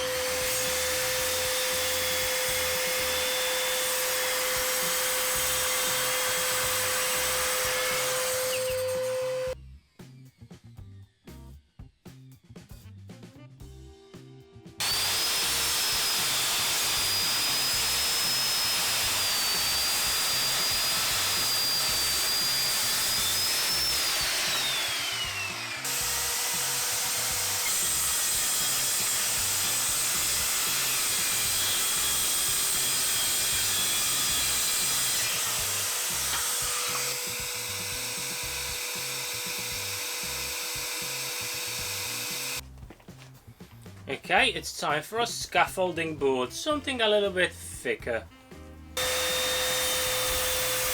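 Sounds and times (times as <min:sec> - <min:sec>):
circular saws cutting wood: 0:00.0 - 0:09.6, 0:14.8 - 0:42.7, 0:49.0 - 0:50.9
high motor whine: 0:00.0 - 0:09.6, 0:14.8 - 0:42.6, 0:49.0 - 0:50.9.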